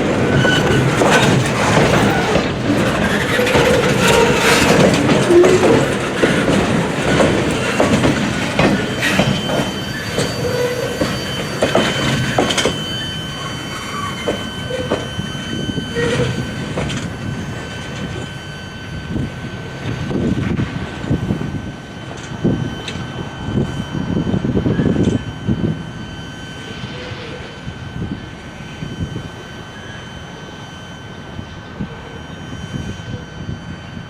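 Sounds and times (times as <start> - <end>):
train wheels clattering over joints: 0.0 - 15.3
high wheel squeal: 0.0 - 20.1, 21.9 - 34.0.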